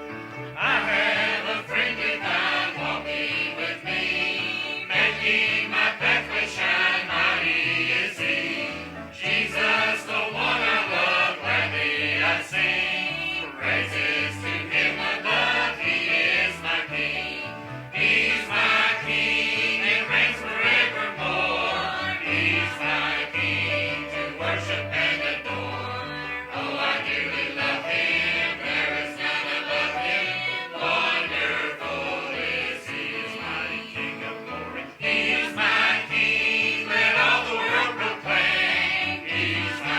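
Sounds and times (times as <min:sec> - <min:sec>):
instrumental accompaniment: 0:00.0 - 0:39.9
choir singing: 0:00.4 - 0:39.9.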